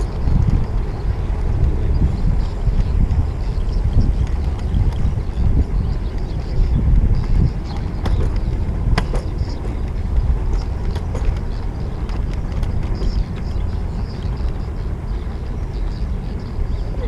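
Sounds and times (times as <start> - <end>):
bicycle clicks and ticks: 0.0 - 17.0
wind and road rumble: 0.0 - 17.0.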